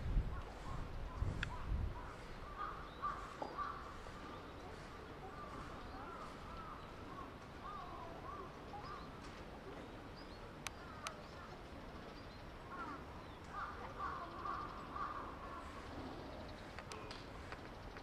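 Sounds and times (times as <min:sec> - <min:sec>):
short bird calls: 0:00.5 - 0:09.2.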